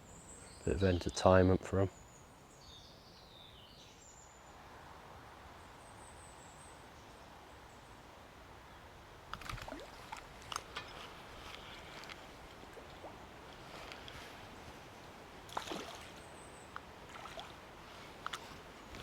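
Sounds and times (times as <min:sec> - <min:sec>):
flowing river water: 0:08.9 - 0:19.0.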